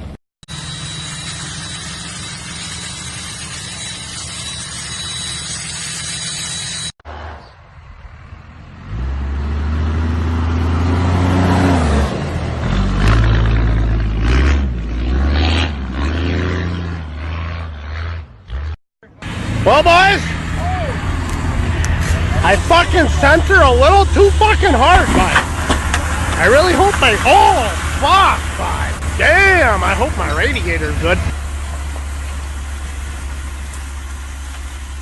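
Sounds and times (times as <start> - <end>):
engine drone with high whine: 0.0 - 9.4, 17.0 - 35.0
truck engine revving: 0.0 - 35.0.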